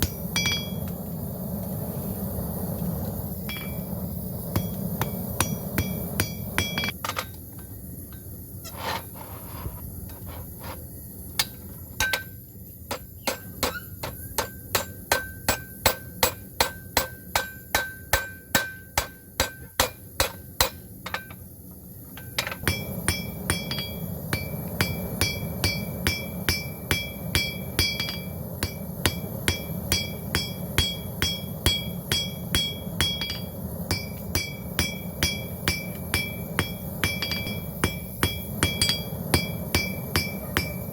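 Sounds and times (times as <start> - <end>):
hammer striking steel on anvil: 0.0 - 0.9, 3.5 - 3.8, 4.5 - 7.4, 11.4 - 21.4, 22.2 - 40.9
low hum: 0.0 - 6.9.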